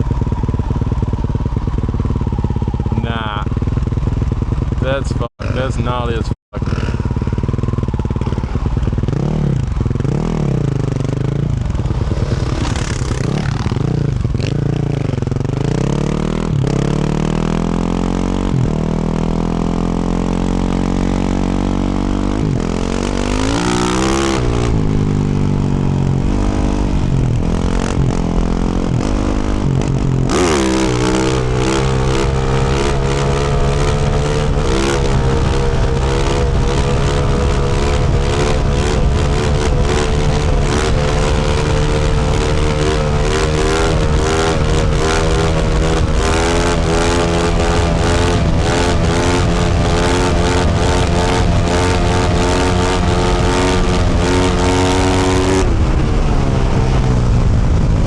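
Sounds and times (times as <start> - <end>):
motorcycle engine revving: 0.0 - 58.0
rough hiss with rapid clatter: 11.6 - 14.4.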